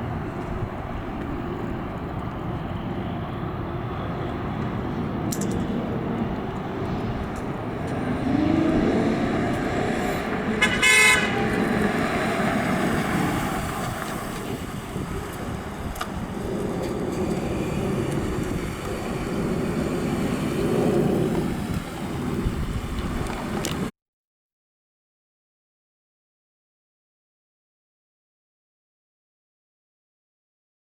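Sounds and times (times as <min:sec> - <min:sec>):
car engine and road noise: 0:00.0 - 0:23.9
car horn toot: 0:10.5 - 0:12.7.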